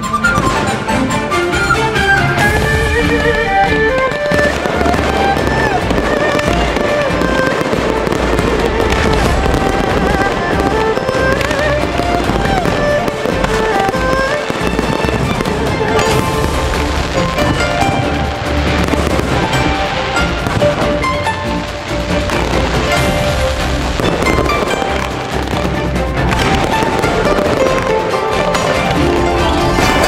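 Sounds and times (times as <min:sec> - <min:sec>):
fireworks bursting and crackling: 0:00.0 - 0:30.0.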